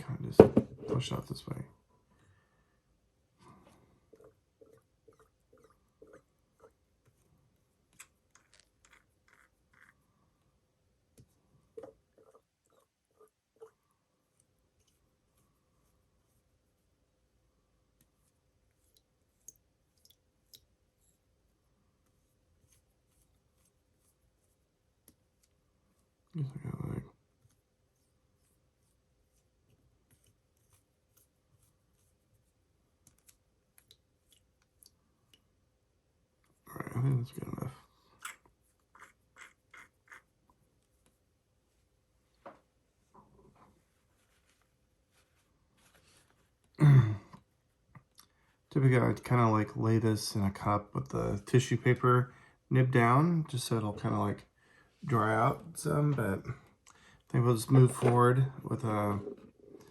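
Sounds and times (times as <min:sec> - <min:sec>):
tissue rustling: 0:43.8 - 0:46.6.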